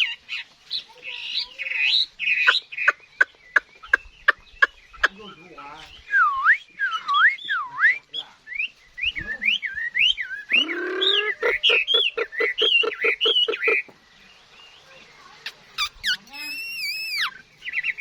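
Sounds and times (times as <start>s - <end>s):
bird singing whistled phrases: 5.9s - 13.9s, 15.4s - 18.0s.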